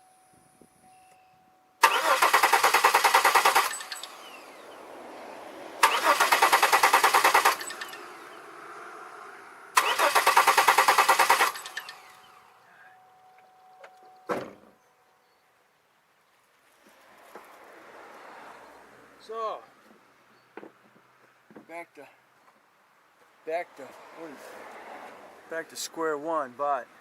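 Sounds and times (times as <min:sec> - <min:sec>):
car engine cranking: 0:01.8 - 0:04.7, 0:05.8 - 0:08.4, 0:09.7 - 0:12.6.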